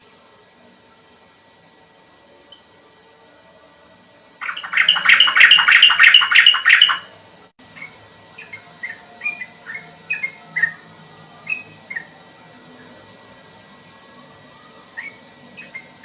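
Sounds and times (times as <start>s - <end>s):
bulbul singing: 4.4s - 7.1s, 7.8s - 10.8s, 14.9s - 16.0s.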